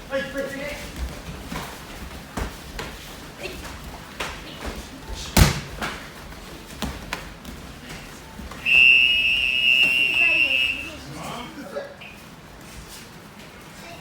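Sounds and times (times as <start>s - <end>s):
bare feet stamping on floor: 0.9s - 8.7s.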